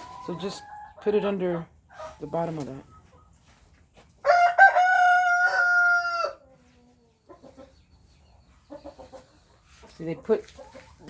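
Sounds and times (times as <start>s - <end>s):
rooster crowing: 4.2s - 6.4s.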